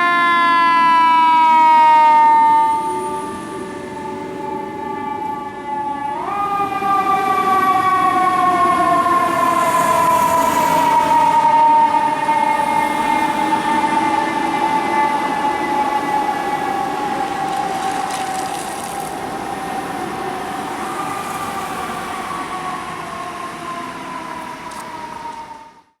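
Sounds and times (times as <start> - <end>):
fire truck siren: 0.0 - 26.0
truck driving on road: 8.0 - 25.8.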